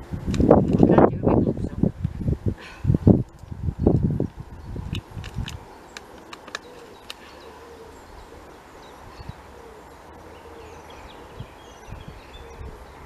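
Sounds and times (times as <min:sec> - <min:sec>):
birds calling: 0:02.6 - 0:13.0
sharp clicks: 0:04.9 - 0:07.3.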